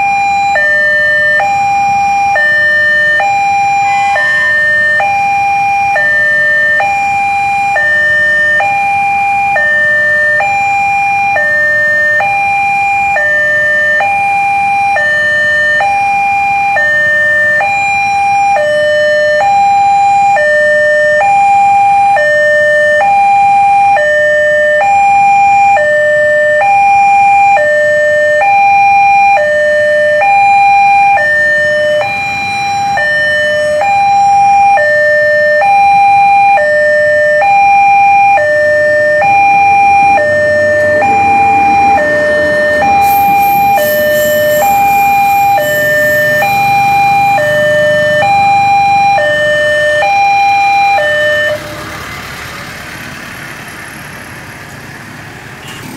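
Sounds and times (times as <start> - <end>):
level crossing two-tone alarm: 0.0 - 51.8
passing train rumble: 1.5 - 9.6, 37.4 - 55.9
thin high whine: 39.7 - 49.2.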